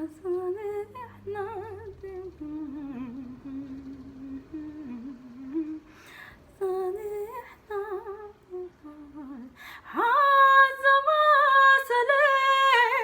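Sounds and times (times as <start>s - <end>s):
woman singing with vibrato: 0.0s - 13.0s
woman breathing: 5.8s - 6.5s, 9.6s - 9.9s.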